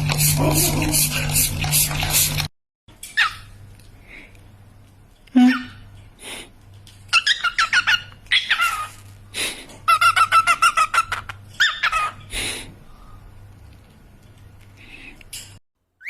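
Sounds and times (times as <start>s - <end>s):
cockatiels chirping: 7.2s - 8.9s.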